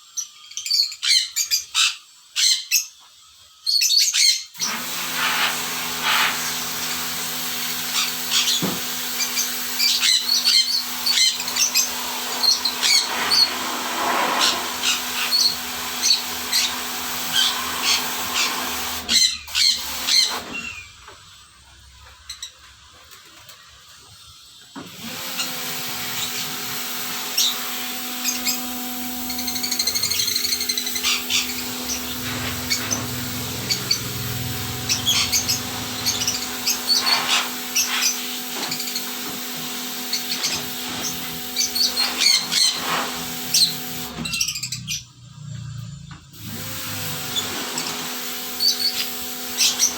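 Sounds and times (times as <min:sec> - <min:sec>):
pressure washer running: 0:04.6 - 0:21.0, 0:24.8 - 0:44.7, 0:46.3 - 0:49.9
birds chirping: 0:14.4 - 0:21.2, 0:28.2 - 0:39.2.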